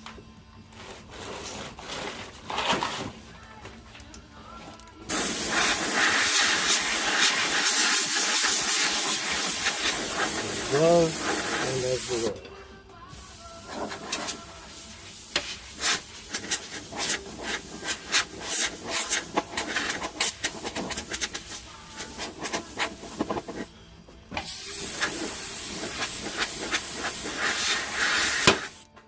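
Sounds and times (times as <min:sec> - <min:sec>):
gas welding torch hissing: 0:05.1 - 0:12.4, 0:13.1 - 0:23.7, 0:24.4 - 0:28.8.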